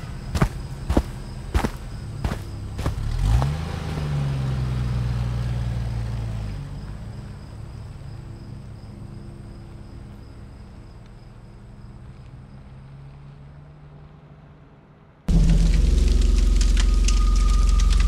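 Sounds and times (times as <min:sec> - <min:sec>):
insect chirping: 0:00.0 - 0:13.1, 0:15.5 - 0:18.0
car engine starting and revving: 0:00.9 - 0:08.8, 0:15.3 - 0:18.0.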